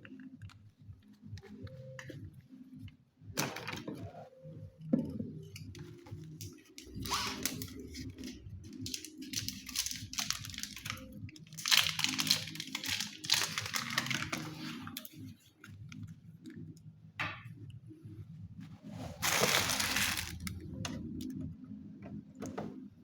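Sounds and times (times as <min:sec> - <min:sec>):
packaging crinkling and rustling: 0:06.2 - 0:15.3, 0:19.0 - 0:20.6.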